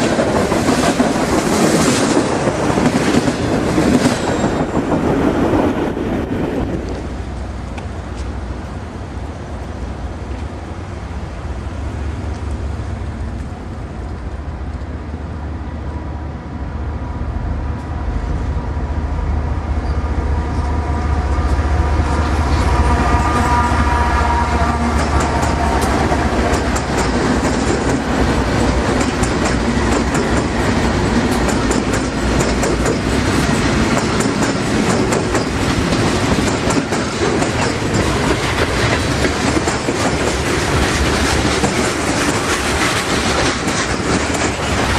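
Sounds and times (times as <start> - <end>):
diesel train engine rumble: 0.0 - 44.9
wheels clicking over rails: 24.8 - 44.9.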